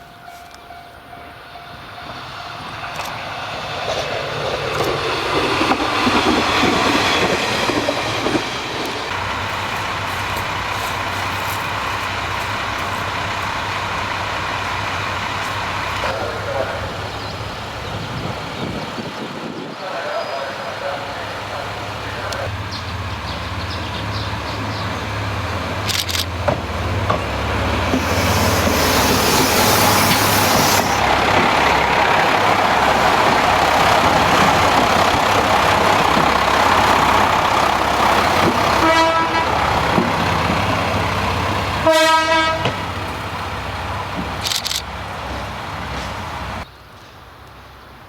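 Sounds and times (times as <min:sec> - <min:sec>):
railcar diesel engine running: 0:00.0 - 0:48.0
air hiss: 0:27.8 - 0:31.1
train horn: 0:38.7 - 0:39.8, 0:41.8 - 0:42.8.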